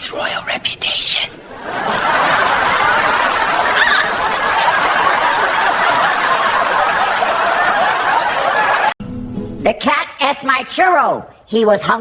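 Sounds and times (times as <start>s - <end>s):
crowd laughing and chattering: 1.3s - 9.0s.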